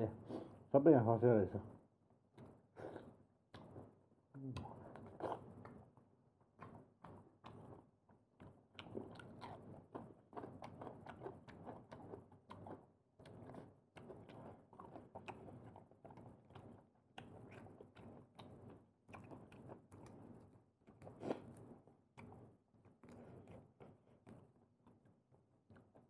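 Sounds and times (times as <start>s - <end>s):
chewing seafood crunches: 6.6s - 25.1s.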